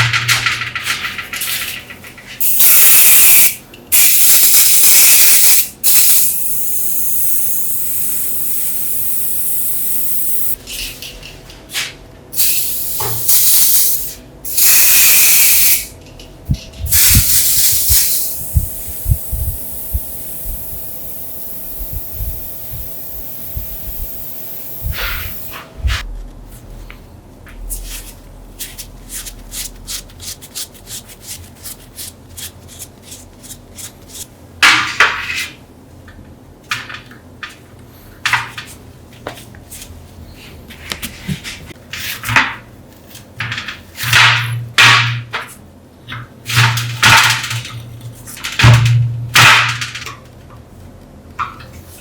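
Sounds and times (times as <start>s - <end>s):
hissing spray bursts: 2.4s - 10.6s, 12.4s - 15.9s, 16.9s - 26.0s.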